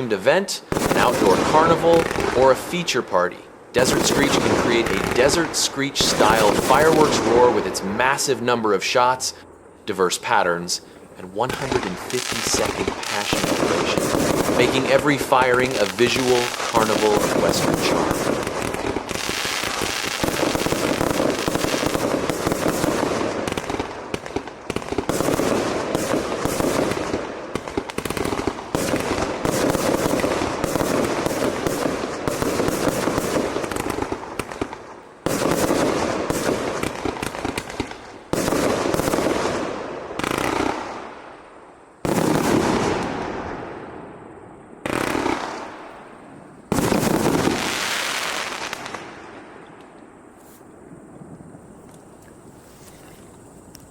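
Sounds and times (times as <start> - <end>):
fireworks firing in rapid bursts: 0.6 - 3.0, 3.8 - 8.0, 11.4 - 41.2, 42.0 - 43.4, 44.8 - 45.9, 46.7 - 49.3.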